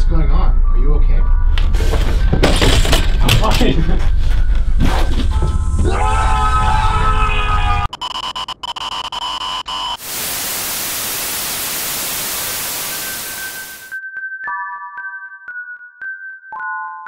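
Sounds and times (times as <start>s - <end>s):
distorted crackling electronic hum: 8.0s - 13.9s
television static hiss: 10.0s - 13.9s.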